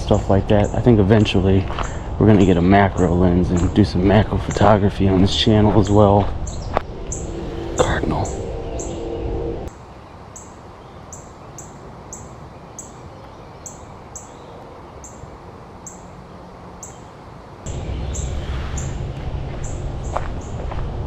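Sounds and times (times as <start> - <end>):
low wind rumble: 0.0 - 10.8, 17.2 - 21.0.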